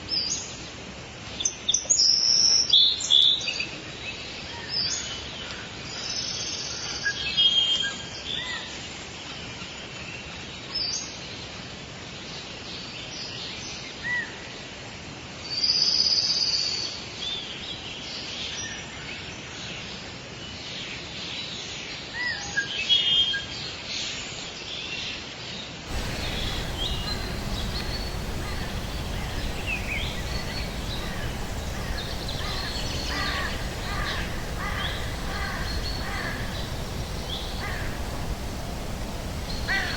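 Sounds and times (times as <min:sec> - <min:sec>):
forest ambience hiss: 0:25.9 - 0:39.9
wild birds chirping: 0:25.9 - 0:39.9.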